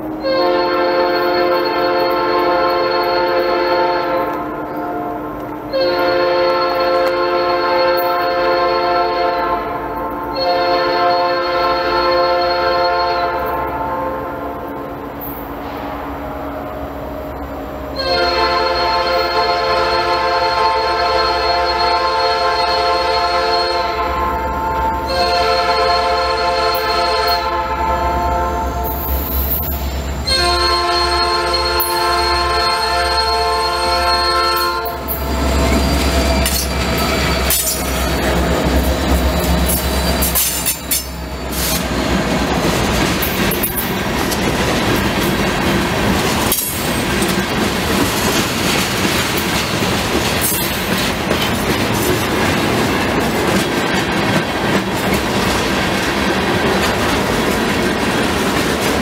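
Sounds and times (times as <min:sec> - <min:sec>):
locomotive air horn: 0:00.0 - 0:42.0
rail clicks: 0:01.1 - 0:08.5, 0:14.5 - 0:59.0
wheel squeal: 0:35.2 - 0:38.3.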